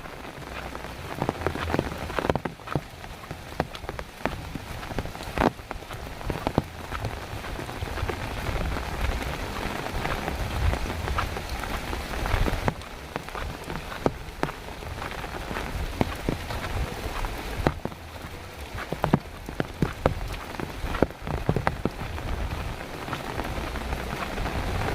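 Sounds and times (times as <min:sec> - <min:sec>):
heavy rain hiss: 0:00.0 - 0:24.9.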